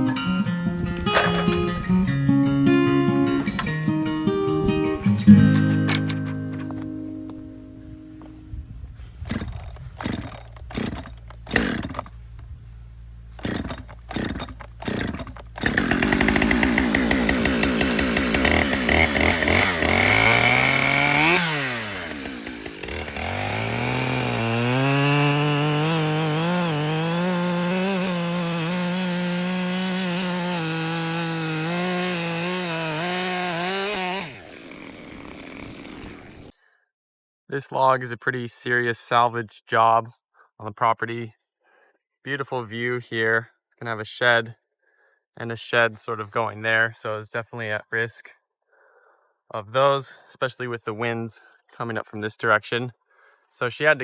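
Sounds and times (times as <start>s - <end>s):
sharp knocks: 1.1s - 1.8s
chainsaw running at high revs: 1.2s - 1.6s, 9.2s - 12.2s, 13.4s - 36.5s.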